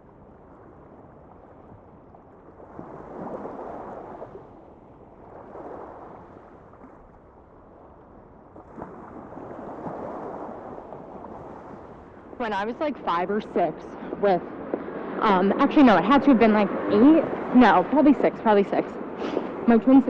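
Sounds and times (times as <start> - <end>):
rushing noise in surges: 12.1 - 20.0.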